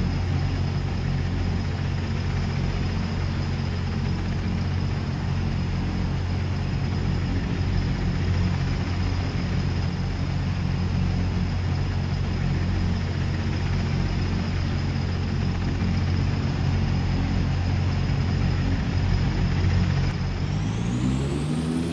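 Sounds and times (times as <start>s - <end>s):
engine droning with high whine: 0.0s - 21.9s.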